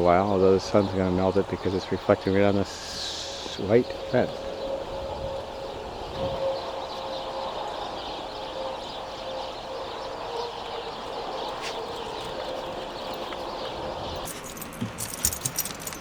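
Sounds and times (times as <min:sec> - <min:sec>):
steady hum: 0:00.0 - 0:11.3
birds chirping: 0:00.0 - 0:16.0.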